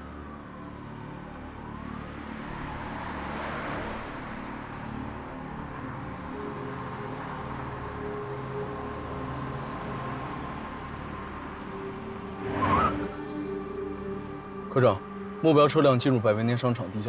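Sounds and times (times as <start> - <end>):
car passing by: 2.6 - 4.6, 11.7 - 13.6.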